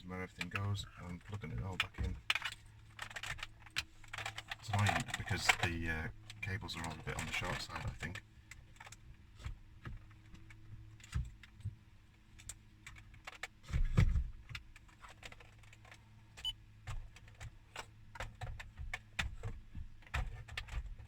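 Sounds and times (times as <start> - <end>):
plastic trim clicks and rattles: 0.3 - 9.0.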